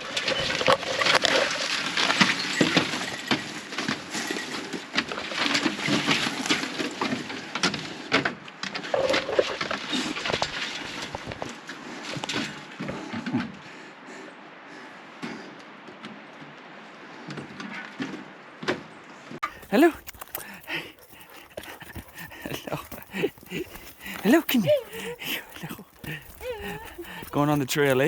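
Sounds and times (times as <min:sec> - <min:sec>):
clothing and gear rustling: 0:19.4 - 0:28.0
footsteps crunching on trail: 0:19.4 - 0:28.0.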